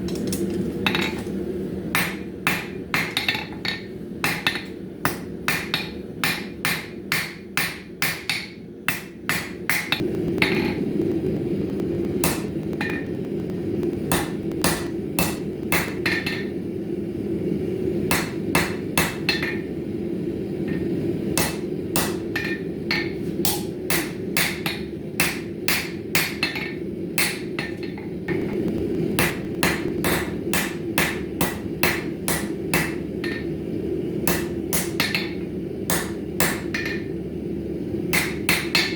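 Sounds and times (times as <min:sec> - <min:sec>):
hammer striking steel on anvil: 0:01.9 - 0:10.8, 0:12.2 - 0:13.1, 0:14.1 - 0:16.5, 0:18.1 - 0:19.7, 0:20.7 - 0:28.6, 0:29.2 - 0:33.5, 0:34.2 - 0:37.1, 0:38.1 - 0:38.9.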